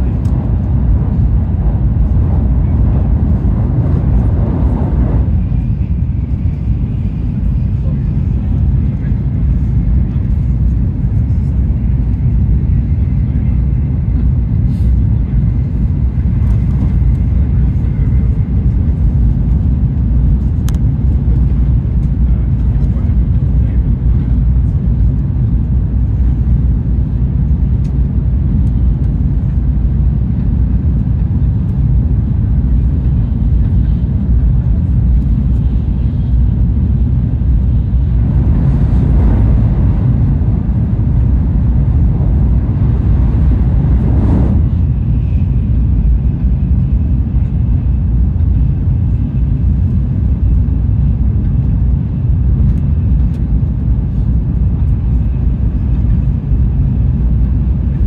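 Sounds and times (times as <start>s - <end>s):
train cabin rumble: 0.0s - 58.0s
rushing noise: 37.9s - 45.8s.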